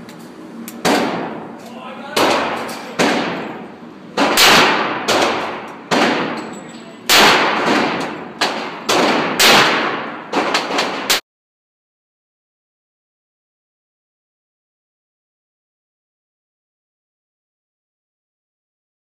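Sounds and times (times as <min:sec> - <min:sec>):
handgun shots: 0:02.2 - 0:03.5, 0:04.2 - 0:06.5, 0:07.1 - 0:11.2.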